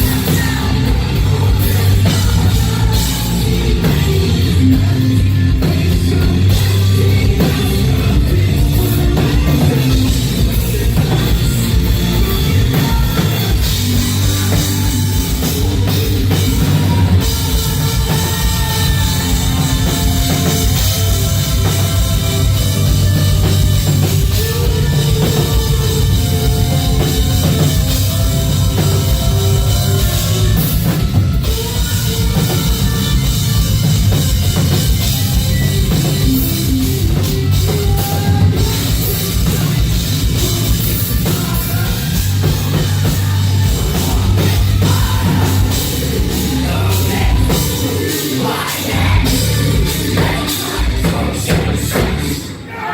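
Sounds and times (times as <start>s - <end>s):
heavy drum kit: 0.0s - 52.9s
rock band playing: 0.0s - 52.9s.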